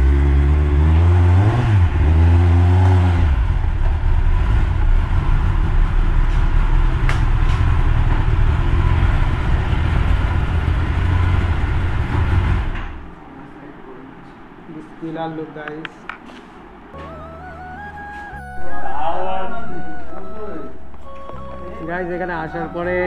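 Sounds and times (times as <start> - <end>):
motorcycle engine running: 0.0 - 13.1.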